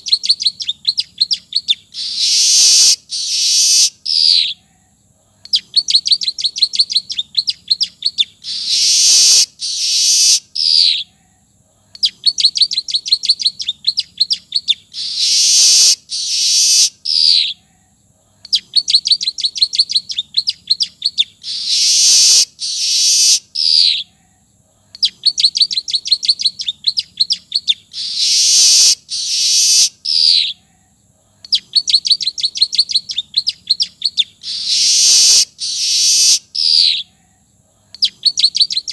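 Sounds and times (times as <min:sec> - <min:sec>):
bird ticking trill: 0:00.0 - 0:04.6, 0:05.5 - 0:11.0, 0:12.0 - 0:17.6, 0:25.0 - 0:30.6, 0:38.0 - 0:38.9
bird hissing wheeze: 0:02.0 - 0:04.5, 0:08.4 - 0:10.5, 0:15.0 - 0:17.0, 0:21.5 - 0:23.4, 0:28.0 - 0:30.0, 0:34.4 - 0:36.5.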